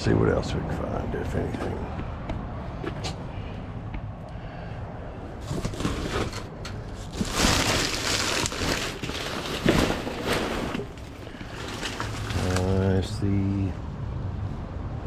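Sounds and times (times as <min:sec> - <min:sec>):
trash rustling and clattering: 0:05.2 - 0:13.4.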